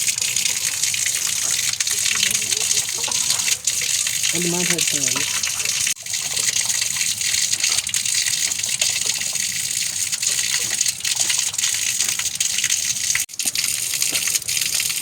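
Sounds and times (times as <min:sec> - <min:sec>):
rushing water hiss: 0:04.3 - 0:05.5.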